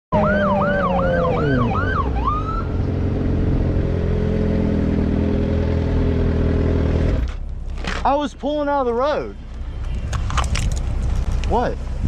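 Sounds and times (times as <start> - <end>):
police siren yelping: 0.1 - 2.8.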